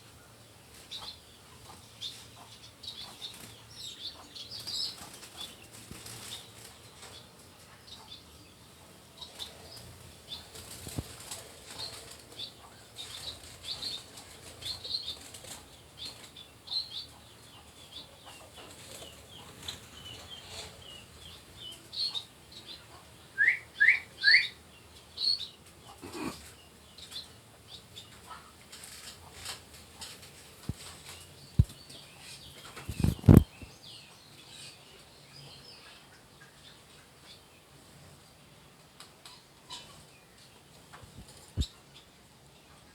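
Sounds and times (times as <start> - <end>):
finches and budgerigars chirping: 0.7 - 37.6
wings fluttering: 10.4 - 12.4, 32.6 - 33.6.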